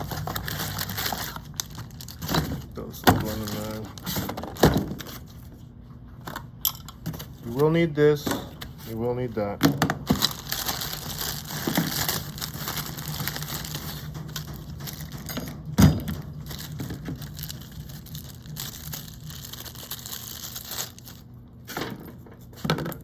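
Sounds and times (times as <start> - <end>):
plastic packaging crinkling: 0.0 - 5.5, 10.0 - 15.4, 16.0 - 21.4.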